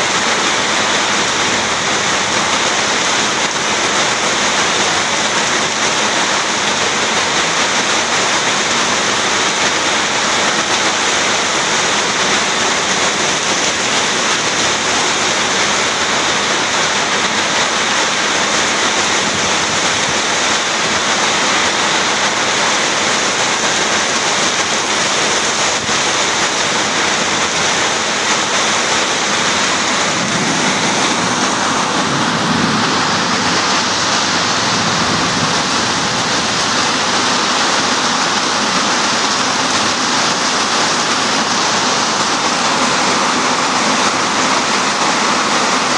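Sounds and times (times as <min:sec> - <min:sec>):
heavy rain pouring on street: 0:00.0 - 0:45.9.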